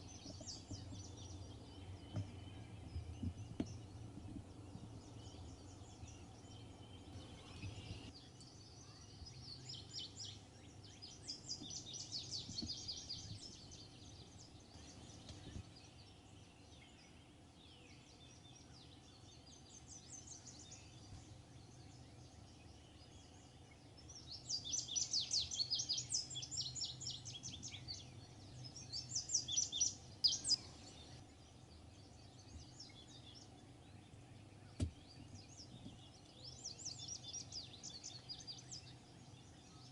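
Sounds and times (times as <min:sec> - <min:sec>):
low outdoor rumble: 0:00.0 - 0:08.3
songbirds singing trilled phrases: 0:00.0 - 0:39.9.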